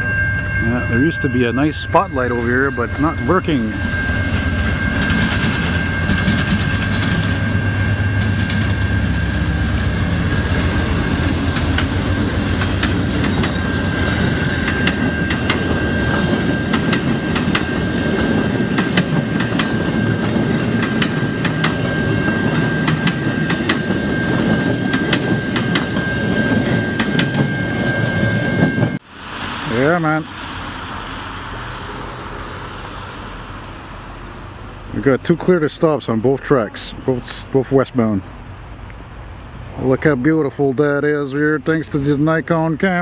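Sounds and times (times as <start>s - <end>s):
locomotive rumble: 0.0s - 43.0s
steady high tone: 0.0s - 43.0s
wheels clicking over rail joints: 10.6s - 29.0s.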